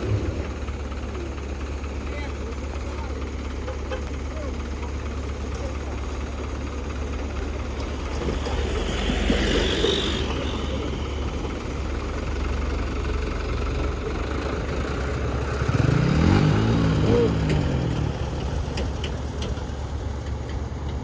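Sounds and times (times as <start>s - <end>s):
heavy vehicle engine idling and revving: 0.0s - 21.0s.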